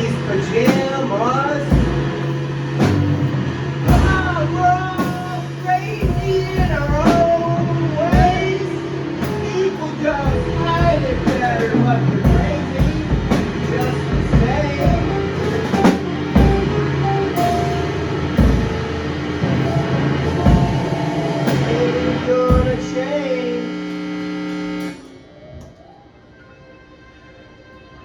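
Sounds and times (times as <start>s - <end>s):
drums hitting: 0.6s - 23.2s
rock band playing: 1.7s - 22.9s.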